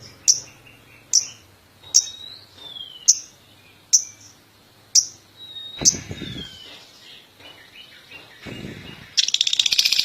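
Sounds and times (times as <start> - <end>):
bird shrill chirps: 5.0 - 10.0.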